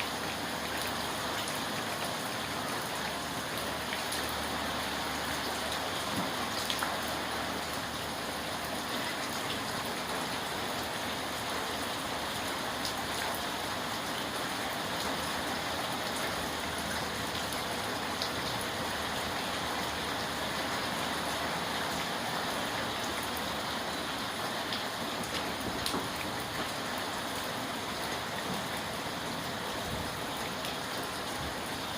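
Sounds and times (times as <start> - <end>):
steady rain falling: 0.0 - 31.9.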